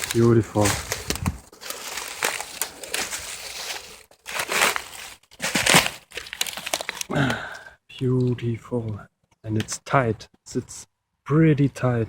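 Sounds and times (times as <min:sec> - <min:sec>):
dry leaves rustling and crunching: 0:00.0 - 0:07.0.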